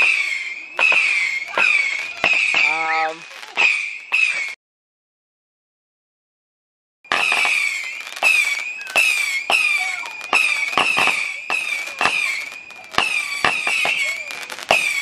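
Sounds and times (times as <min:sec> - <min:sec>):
falling firework whistles: 0:00.0 - 0:04.6, 0:07.1 - 0:15.0
firework bangs: 0:00.0 - 0:04.6, 0:07.1 - 0:15.0
steady high whistle: 0:07.1 - 0:15.0.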